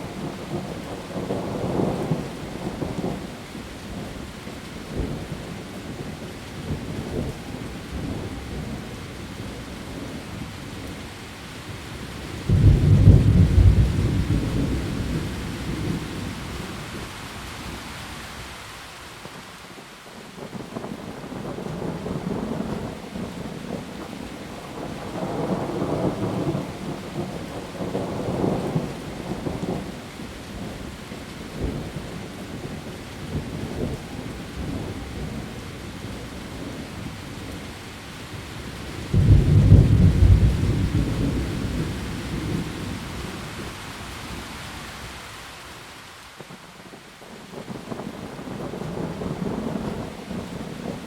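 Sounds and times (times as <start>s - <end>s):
heavy rain on leaves: 0.0s - 51.0s
rolling thunder: 12.4s - 16.4s, 39.0s - 43.7s
loud thunderclap: 12.5s - 16.0s, 39.1s - 42.7s.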